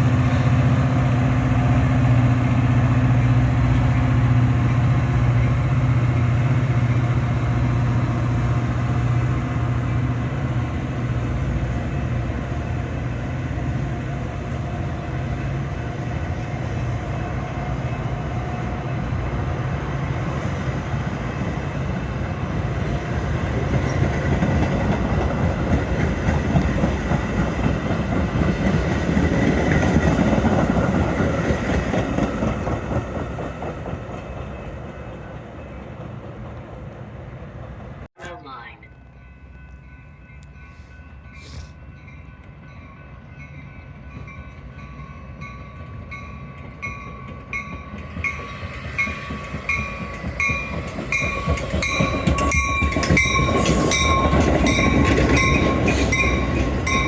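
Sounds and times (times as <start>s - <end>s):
diesel train engine hum: 0.0s - 57.0s
wheels clicking over rail joints: 46.4s - 57.0s.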